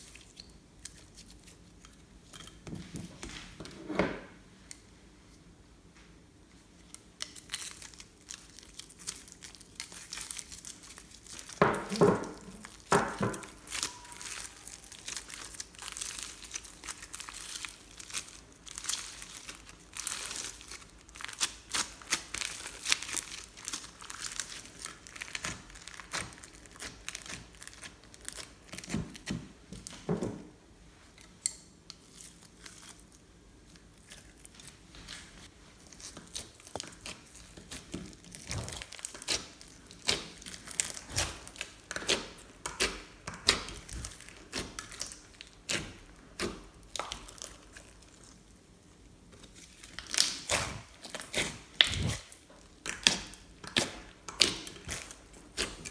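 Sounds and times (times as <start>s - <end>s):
slime squished by hand: 35.9s - 48.2s, 49.6s - 55.9s.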